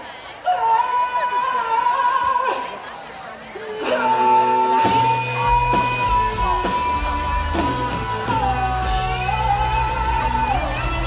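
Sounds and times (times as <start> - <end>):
blues-rock band playing: 3.8 - 11.0.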